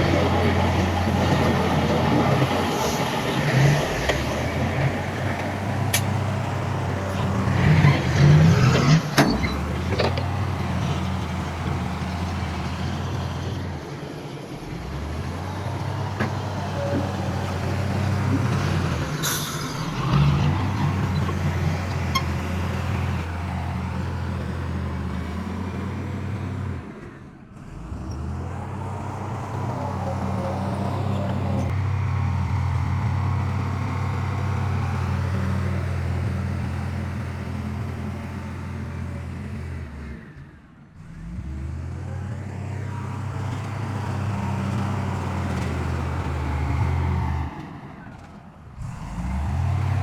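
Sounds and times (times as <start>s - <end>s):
heavy diesel engine running: 0.0s - 50.0s.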